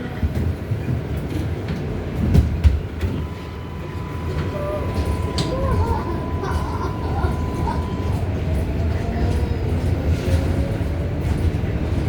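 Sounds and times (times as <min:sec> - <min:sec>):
subway train rumbling: 0:00.0 - 0:12.0
steady high tone: 0:03.2 - 0:09.8.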